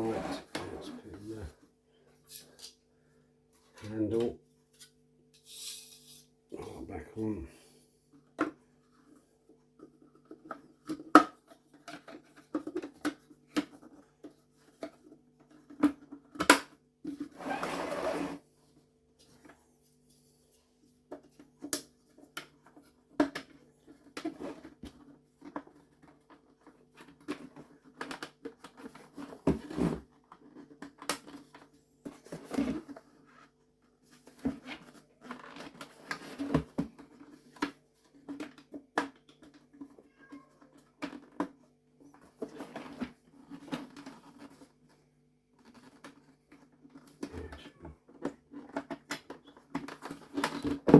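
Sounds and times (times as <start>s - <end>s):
plastic parts clicking and knocking: 9.8s - 17.2s.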